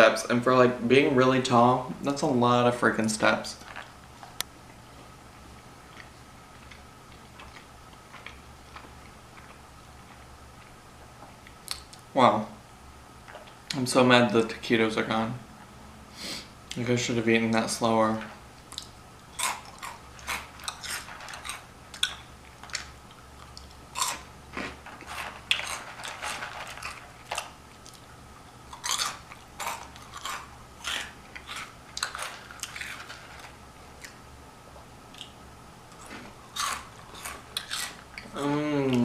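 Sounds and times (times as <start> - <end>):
crunchy snacks being chewed: 3.5 - 4.4, 5.9 - 12.1, 18.6 - 34.2, 35.1 - 38.4.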